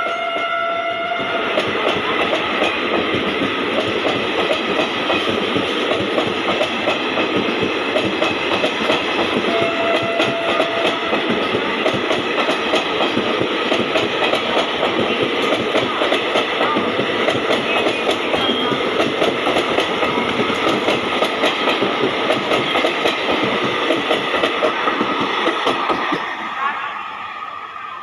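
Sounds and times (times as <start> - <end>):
train wheels clattering over rails: 0.0 - 26.6.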